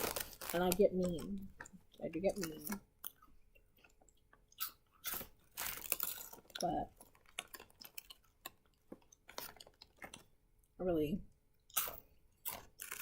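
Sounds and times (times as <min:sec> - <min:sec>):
chewing and crunching snacks: 0:00.0 - 0:10.8, 0:11.5 - 0:13.0.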